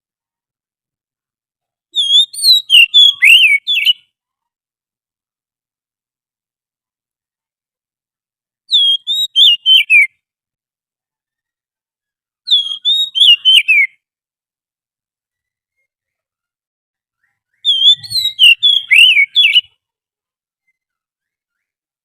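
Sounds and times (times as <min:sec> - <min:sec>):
bird song whistled phrases: 0:01.9 - 0:04.1, 0:08.7 - 0:10.2, 0:12.5 - 0:14.0, 0:17.2 - 0:19.8.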